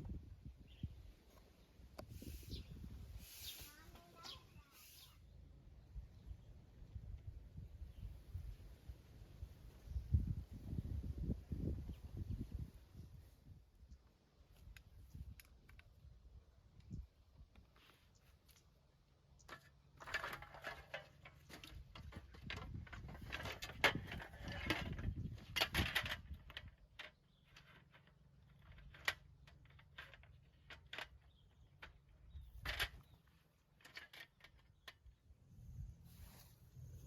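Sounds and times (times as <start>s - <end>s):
objects being handled: 19.4s - 35.2s.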